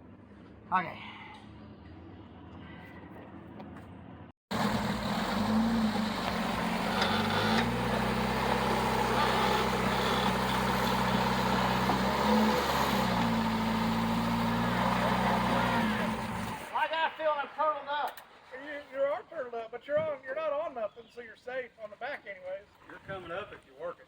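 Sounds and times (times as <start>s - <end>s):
off-road vehicle engine running: 4.5s - 16.8s.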